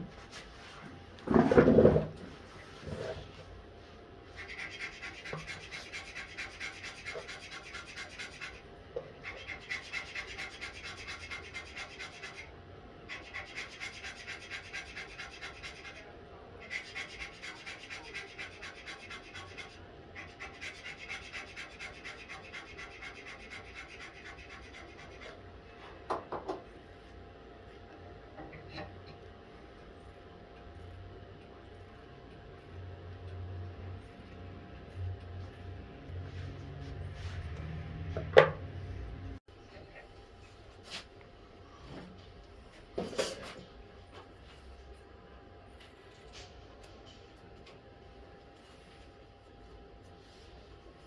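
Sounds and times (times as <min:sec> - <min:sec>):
filing or sanding wood: 0:04.4 - 0:12.5, 0:13.1 - 0:25.4.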